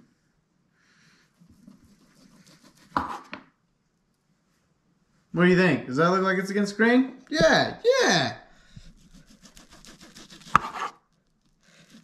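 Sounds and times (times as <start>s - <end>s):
knife scraping on cutting board: 1.6s - 3.4s, 9.0s - 11.0s.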